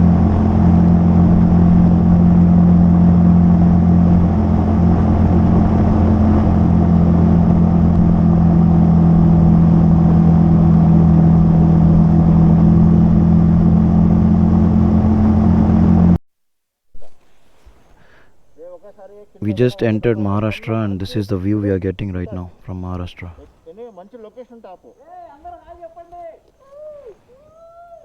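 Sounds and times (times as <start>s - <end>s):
motorcycle engine cruising: 0.0s - 16.2s.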